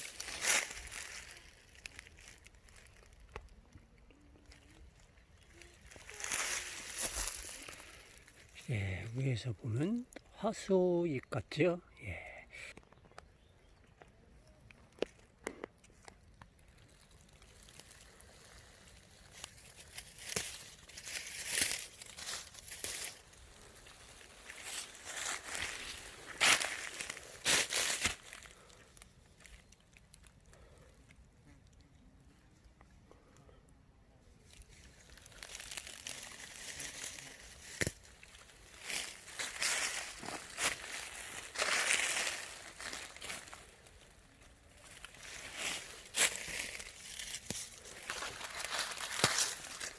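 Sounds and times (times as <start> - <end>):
dry leaves rustling: 0.0 - 3.6, 4.3 - 9.9, 16.5 - 30.8, 34.4 - 49.9
twig snapping: 19.3 - 23.3, 35.0 - 43.6, 44.9 - 49.9.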